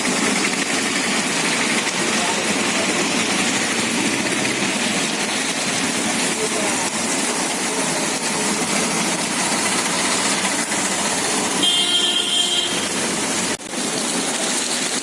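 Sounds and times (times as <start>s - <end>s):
street traffic: 0.0s - 15.0s
vehicle horn honking: 11.6s - 13.0s.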